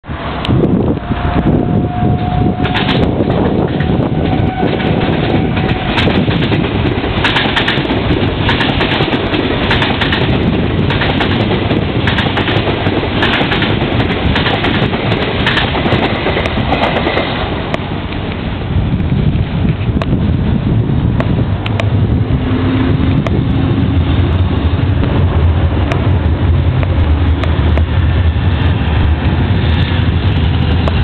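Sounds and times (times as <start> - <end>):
train heavy rumble: 0.0 - 31.0
wheels clattering over rail joints: 2.6 - 20.1.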